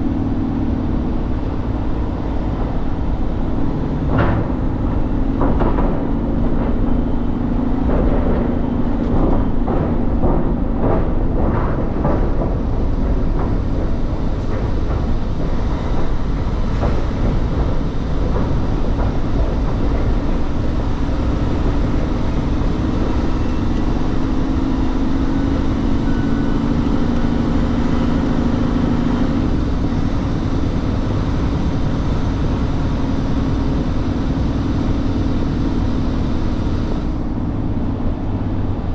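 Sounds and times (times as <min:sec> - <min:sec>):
truck engine and road noise: 0:00.0 - 0:38.9
knocks and rattles: 0:00.1 - 0:33.2.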